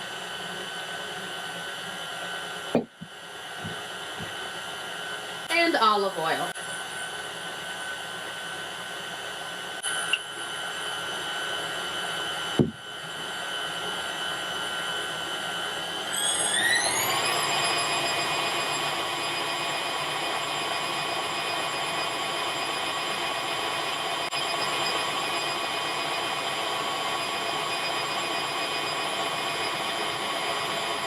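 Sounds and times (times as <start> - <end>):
stand mixer motor whining: 6.9 - 31.0
short knock: 12.6 - 12.8.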